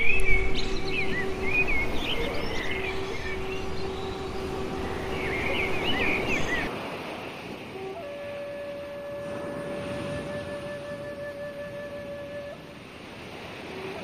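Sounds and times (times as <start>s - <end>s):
small birds chirping: 0.0s - 6.7s
steady outdoor hum: 0.0s - 14.0s.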